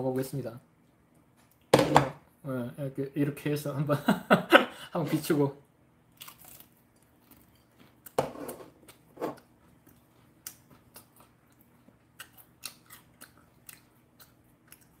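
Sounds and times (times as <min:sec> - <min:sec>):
chewing crisp chicken: 0:08.8 - 0:15.0.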